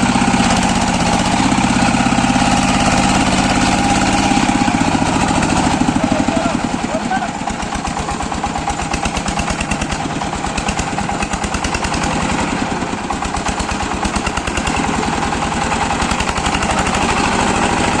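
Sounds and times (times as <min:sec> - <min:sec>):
power tiller engine chugging: 0:00.0 - 0:18.0.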